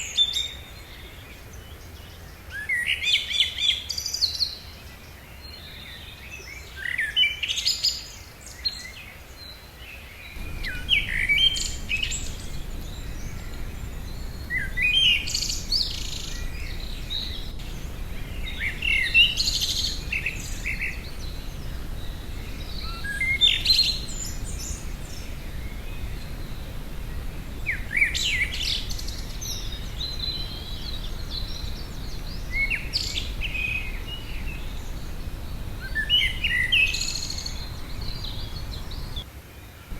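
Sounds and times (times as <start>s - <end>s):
songbird singing: 0.0s - 39.9s
birds chirping: 10.2s - 39.3s
low steady rumble: 10.4s - 39.2s.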